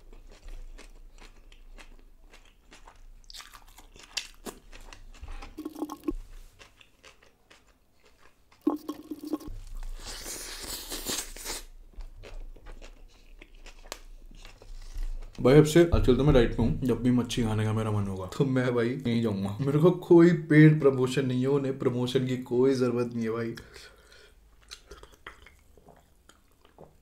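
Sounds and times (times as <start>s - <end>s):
person chewing and crunching food: 0.0s - 15.5s, 23.6s - 27.0s.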